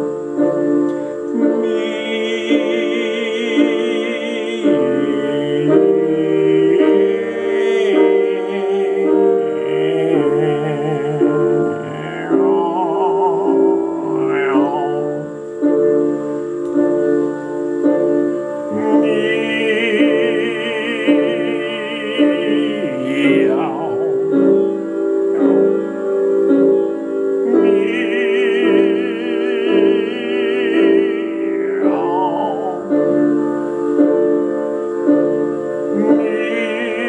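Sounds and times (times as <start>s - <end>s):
piano chords: 0.0s - 37.0s
operatic singing on meow syllables: 1.4s - 15.5s.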